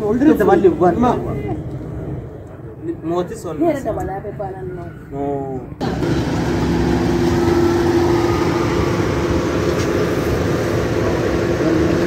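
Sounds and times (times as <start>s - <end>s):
car engine humming: 5.8s - 12.0s.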